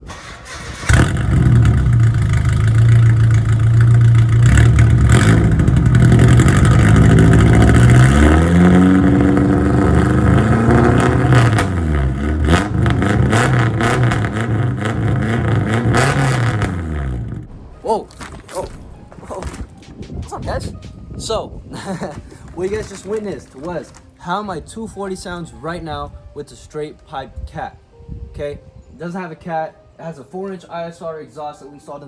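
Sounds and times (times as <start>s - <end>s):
exhaust crackle: 0.0s - 21.3s
raspy car exhaust revving: 0.6s - 17.9s.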